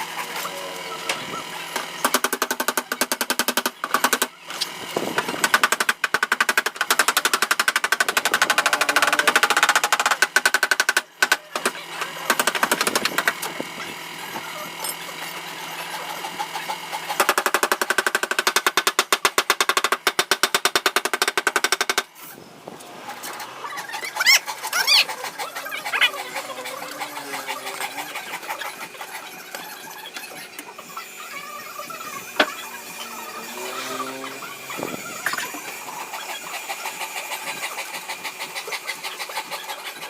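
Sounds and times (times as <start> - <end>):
mechanical rattling: 1.7 - 15.1, 16.3 - 22.2.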